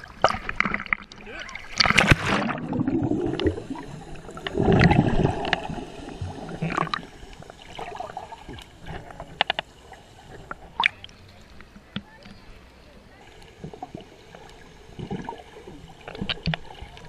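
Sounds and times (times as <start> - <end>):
seawater sloshing and splashing: 0.0 - 3.8.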